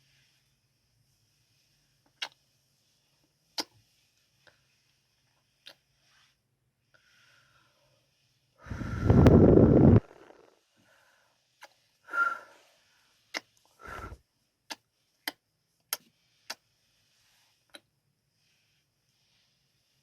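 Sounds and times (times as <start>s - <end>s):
rush against microphone: 8.6s - 10.4s.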